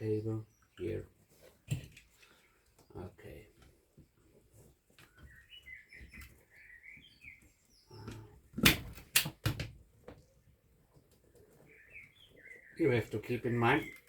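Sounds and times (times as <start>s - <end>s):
small bird chirping: 4.9s - 8.4s, 10.2s - 14.0s.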